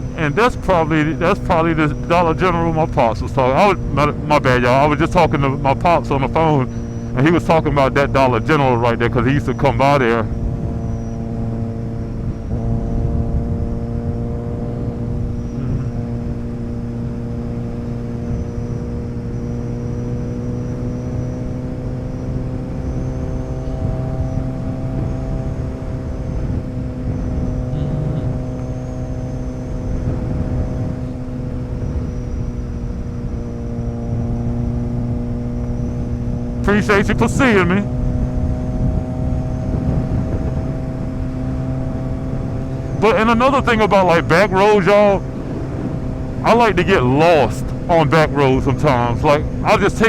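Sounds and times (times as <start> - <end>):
motorcycle engine cruising: 0.0 - 50.0
wind on microphone: 22.6 - 35.0, 37.8 - 43.0, 45.0 - 46.5.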